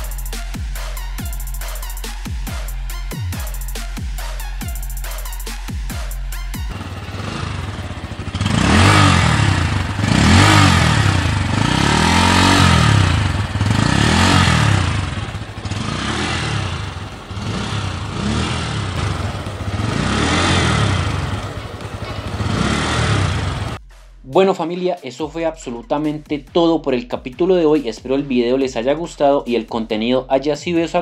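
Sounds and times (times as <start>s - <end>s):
motorcycle engine revving: 0.0s - 23.8s.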